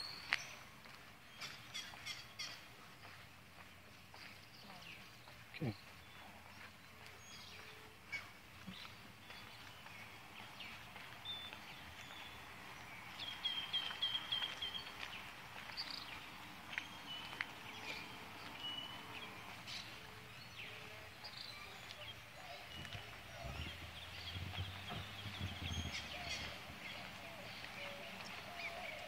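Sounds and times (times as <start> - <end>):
birds chirping and whistling: 16.8 - 29.0.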